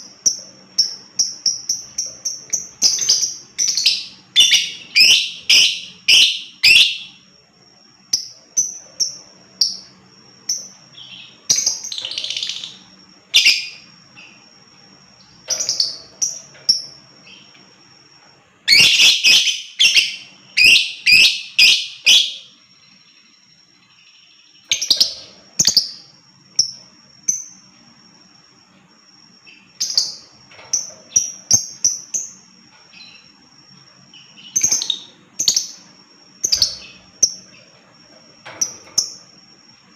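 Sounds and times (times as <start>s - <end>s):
lovebird chirping: 0.0s - 17.6s, 18.6s - 27.9s, 29.4s - 39.9s.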